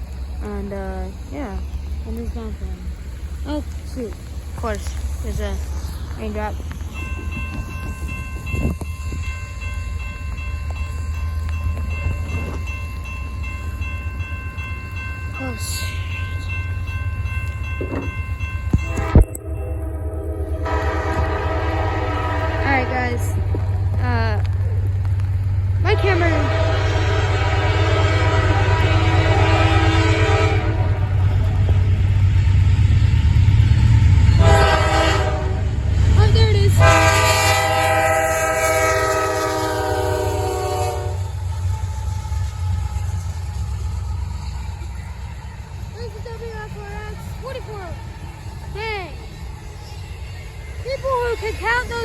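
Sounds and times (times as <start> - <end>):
heavy rain: 0.0 - 7.4, 19.8 - 44.9
thin steady high tones: 0.0 - 30.0, 37.5 - 52.0
diesel locomotives rumbling: 0.0 - 52.0
train air horn chord: 18.8 - 23.4, 25.9 - 31.1, 34.4 - 35.7, 36.8 - 41.3.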